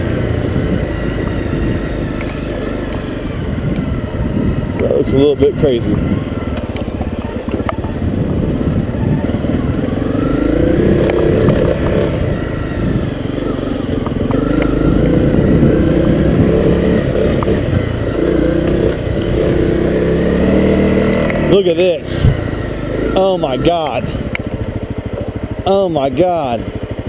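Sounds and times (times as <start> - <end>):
motorcycle engine revving: 0.0 - 27.0
knocks and clatter over rough ground: 6.3 - 8.9, 10.9 - 12.2, 23.8 - 25.5.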